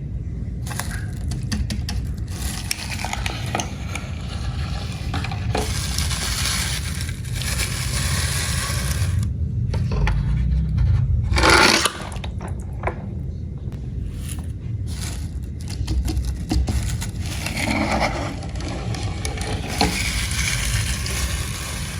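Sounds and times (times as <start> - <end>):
toy cars rattling on hard surface: 0.6 - 9.2, 14.1 - 21.9.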